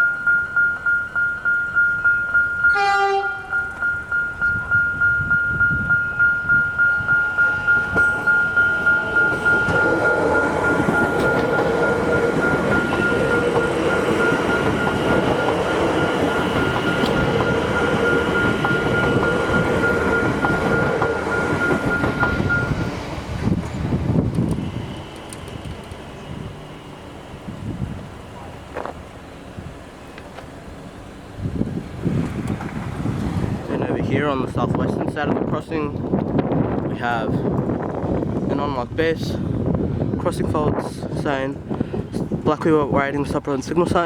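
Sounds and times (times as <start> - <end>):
level crossing bells ringing: 0.0 - 22.9
electric train passing: 0.0 - 44.0
train horn blast: 2.7 - 3.8.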